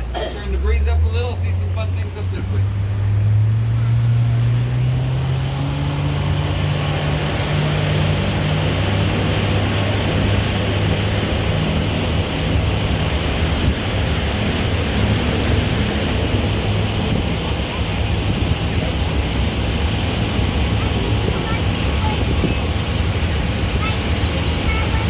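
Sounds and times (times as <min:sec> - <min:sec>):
boat engine running: 0:00.0 - 0:25.0
water rushing along hull: 0:00.0 - 0:25.0.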